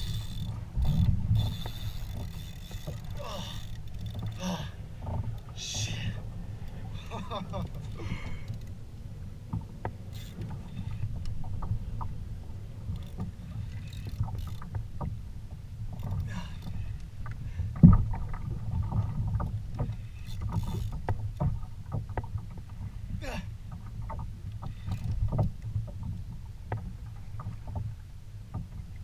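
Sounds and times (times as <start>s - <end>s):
water rushing against kayak hull: 0.0s - 29.0s
small knocks on hull: 17.2s - 29.0s.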